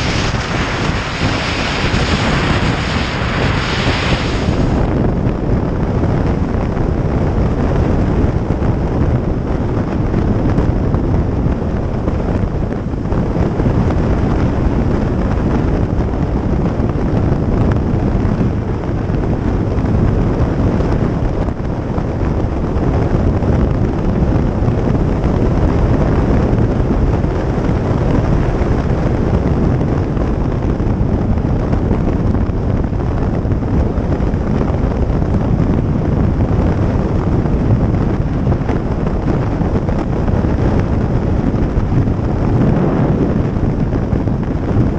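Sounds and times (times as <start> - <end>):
road noise: 0.0 - 5.6
wind buffeting microphone: 0.0 - 44.9.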